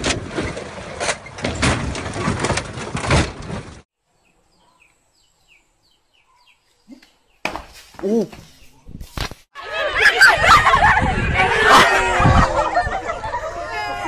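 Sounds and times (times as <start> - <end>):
loud rough noise with knocks: 0.0 - 3.8
faint bird chirping: 4.1 - 7.5.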